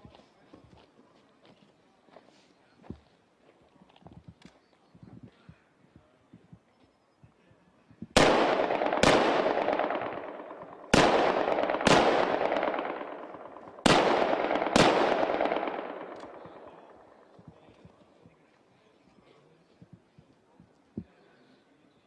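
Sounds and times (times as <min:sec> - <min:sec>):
rifle shots with echo: 0:08.2 - 0:17.5.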